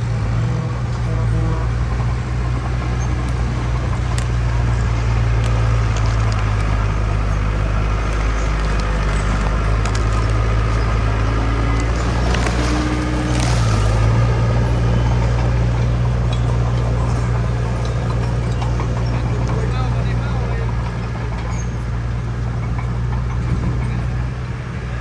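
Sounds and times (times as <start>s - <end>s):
heavy diesel engine droning: 0.0s - 25.0s
faint clicks and knocks: 2.7s - 24.2s.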